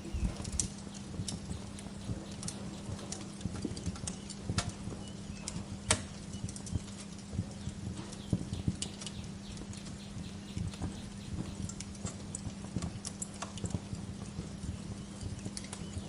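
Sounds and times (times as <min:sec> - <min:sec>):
wood fire crackling: 0:00.0 - 0:00.7
low steady hum: 0:00.0 - 0:03.6.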